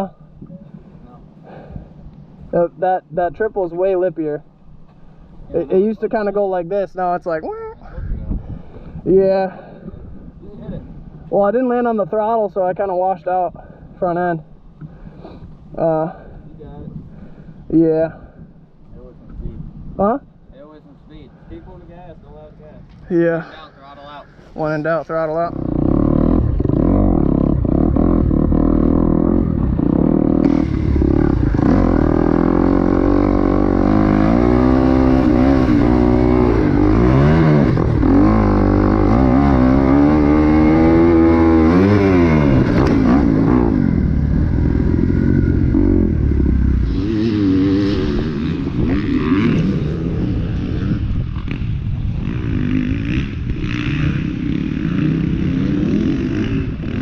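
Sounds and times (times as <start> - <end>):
motorcycle engine revving: 25.0 - 57.0.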